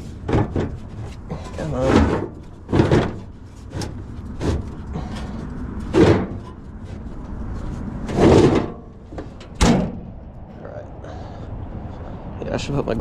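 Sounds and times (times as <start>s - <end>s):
sharp knocks and clunks: 0.0s - 7.0s, 8.0s - 10.4s.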